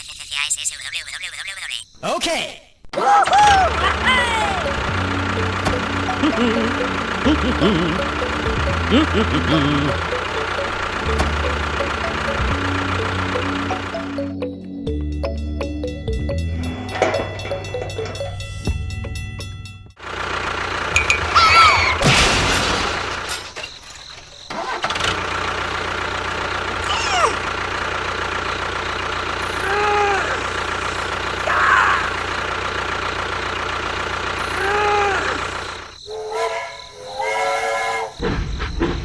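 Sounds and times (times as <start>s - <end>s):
small engine humming: 3.4s - 22.0s, 24.2s - 38.2s
brief voice-like cry: 26.8s - 27.4s
short rising and falling calls: 34.5s - 38.2s.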